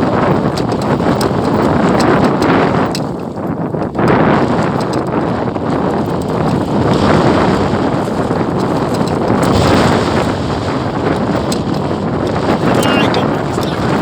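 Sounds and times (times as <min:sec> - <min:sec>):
strong wind on microphone: 0:00.0 - 0:14.0.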